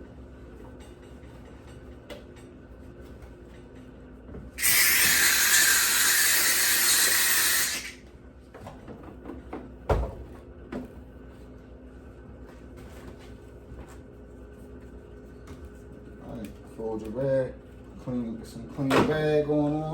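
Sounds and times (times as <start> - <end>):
steam cleaner hissing: 4.6 - 8.0.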